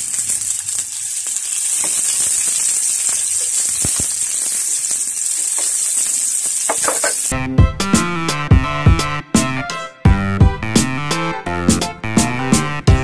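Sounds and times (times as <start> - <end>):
onion and ginger sizzling in oil: 0.0 - 7.4.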